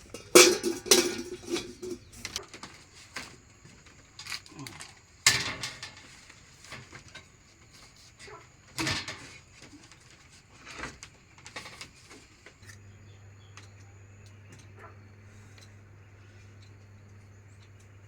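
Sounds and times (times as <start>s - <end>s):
steady low hum: 0.0s - 2.4s
knocks and clatters of handling: 0.0s - 8.0s, 8.7s - 12.8s.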